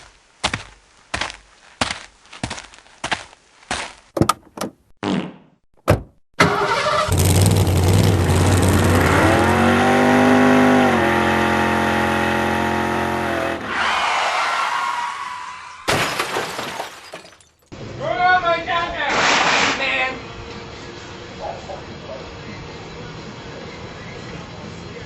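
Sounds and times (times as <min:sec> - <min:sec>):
car engine revving: 0:06.4 - 0:13.7.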